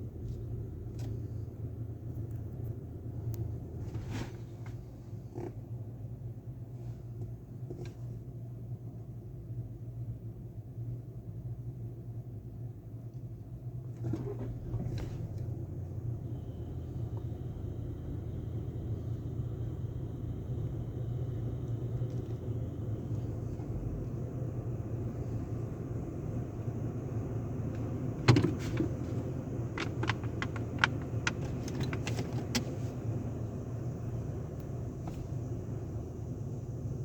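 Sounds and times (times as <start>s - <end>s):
car wash machinery rumbling: 14.0s - 37.0s.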